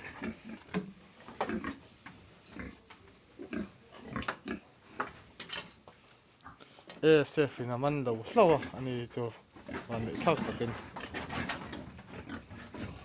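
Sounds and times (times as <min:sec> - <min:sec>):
pigs grunting: 0:00.0 - 0:00.8, 0:01.4 - 0:01.8, 0:02.5 - 0:04.7, 0:08.2 - 0:13.0.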